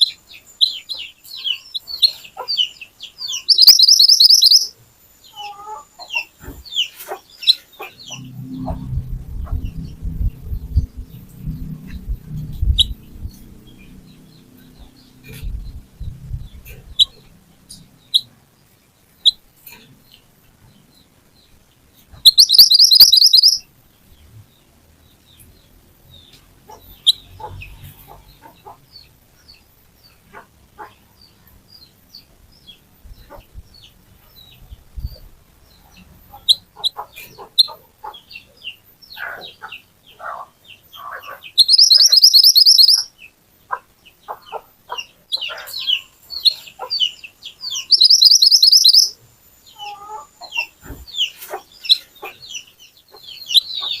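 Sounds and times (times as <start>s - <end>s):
bird chirps and calls: 0.0s - 18.3s, 19.2s - 54.0s
songbird buzzy trill: 0.0s - 24.2s, 41.0s - 43.4s, 44.1s - 54.0s.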